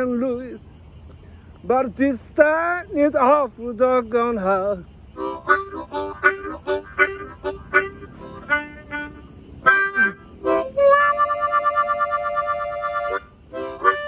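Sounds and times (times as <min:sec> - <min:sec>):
blues harmonica: 0:05.2 - 0:14.0.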